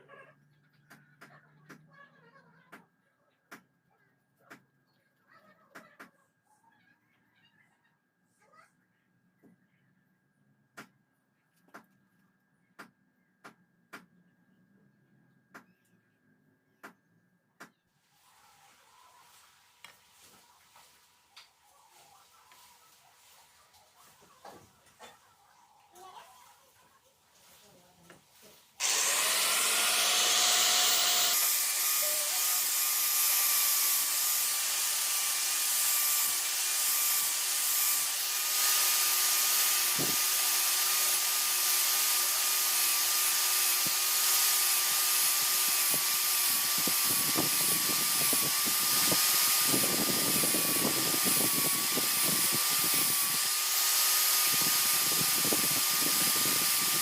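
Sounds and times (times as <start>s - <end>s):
power tool whining: 28.8s - 57.0s.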